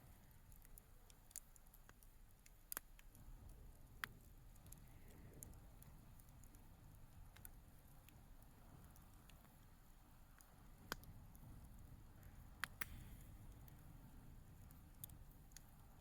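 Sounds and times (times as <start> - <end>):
bonfire crackling: 0.0 - 16.0
sharp fire pops: 10.7 - 15.8.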